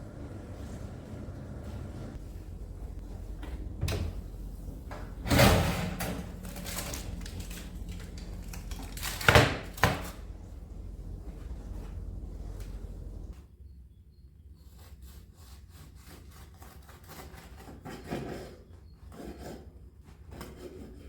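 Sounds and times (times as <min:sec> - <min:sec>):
steady low hum: 0:00.0 - 0:13.4
scrape: 0:14.6 - 0:21.0.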